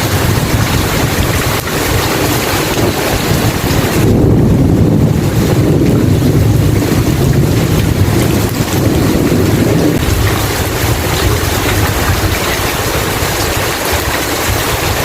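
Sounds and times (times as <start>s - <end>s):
deep thunder rumble: 0.0s - 15.0s
steady rain hiss: 7.2s - 15.0s.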